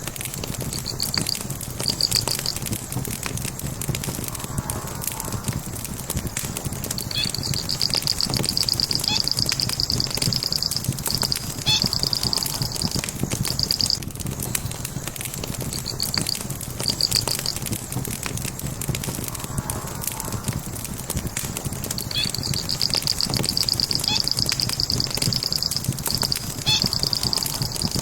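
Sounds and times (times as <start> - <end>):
log fire crackling and popping: 0.0 - 28.0
low rumble: 2.7 - 15.0, 17.6 - 24.1.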